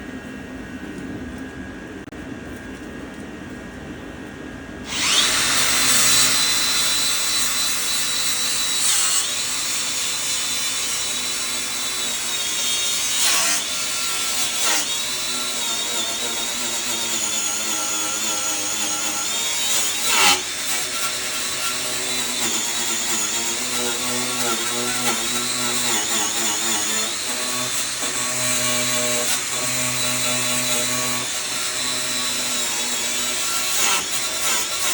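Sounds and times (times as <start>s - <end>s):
power tool whining: 4.8s - 34.9s.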